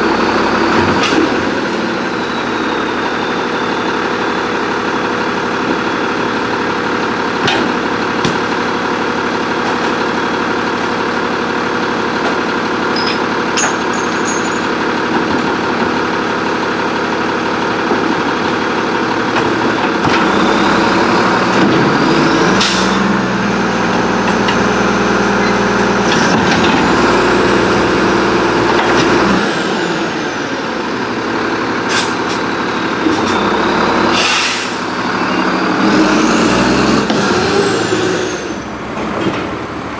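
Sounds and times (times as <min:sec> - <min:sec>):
truck diesel engine running: 0:00.0 - 0:39.9
air brake hiss: 0:22.6 - 0:23.0, 0:31.9 - 0:32.4, 0:34.1 - 0:35.0.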